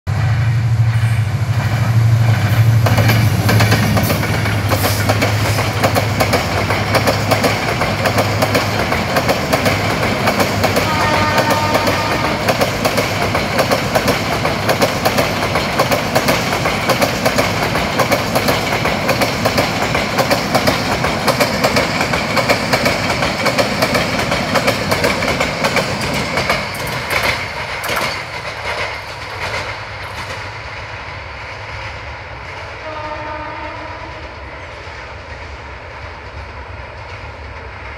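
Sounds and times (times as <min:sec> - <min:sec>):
diesel locomotive engine hum: 0:00.1 - 0:37.9
coaches clattering over rail joints: 0:01.7 - 0:30.8.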